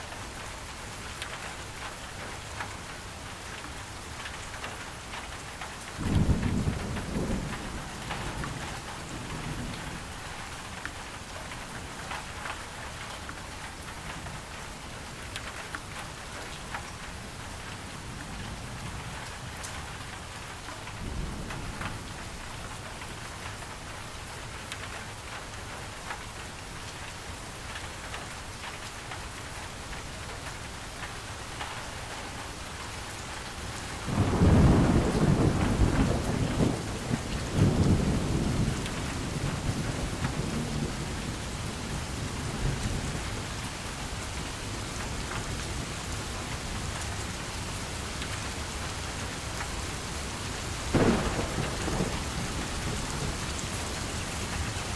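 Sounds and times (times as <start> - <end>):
rain drops ticking: 0.0 - 54.9
steady rain: 0.0 - 54.9
thunder rolling: 34.0 - 41.4, 50.9 - 54.9.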